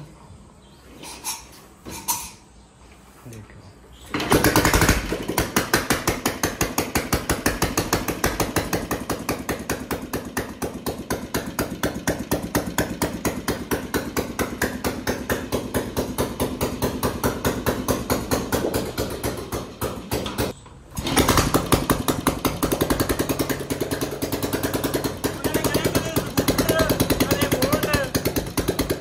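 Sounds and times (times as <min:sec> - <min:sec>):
motorcycle engine starting and idling: 0:04.0 - 0:29.0.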